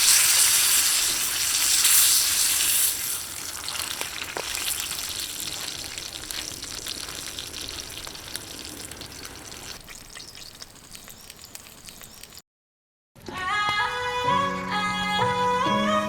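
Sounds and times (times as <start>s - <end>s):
meat sizzling on griddle: 0.0s - 12.4s
wood fire pops and crackles: 0.0s - 12.4s.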